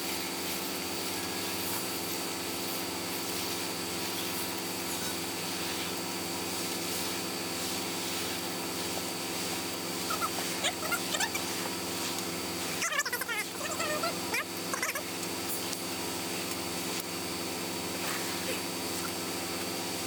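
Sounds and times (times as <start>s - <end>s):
machine droning: 0.0s - 20.0s
short high squeaks: 10.0s - 11.6s.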